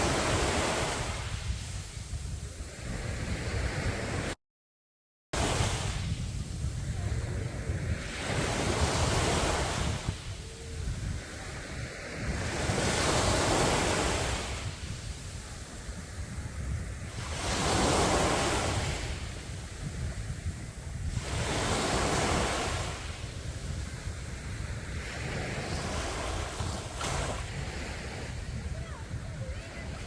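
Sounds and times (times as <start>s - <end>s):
sea waves breaking: 0.0s - 4.4s, 5.4s - 30.0s
wind rumbling on microphone: 0.0s - 4.4s, 5.4s - 30.0s.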